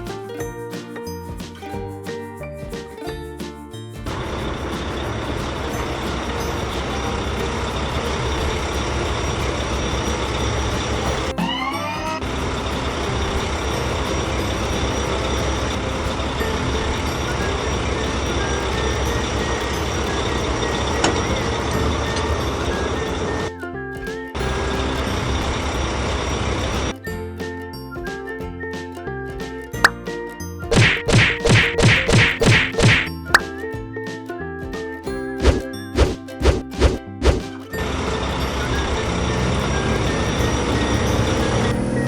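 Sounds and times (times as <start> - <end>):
cartoon truck engine rumble: 4.1 - 28.9, 36.1 - 42.0
rising pitch glides: 5.8 - 23.5, 36.8 - 42.0.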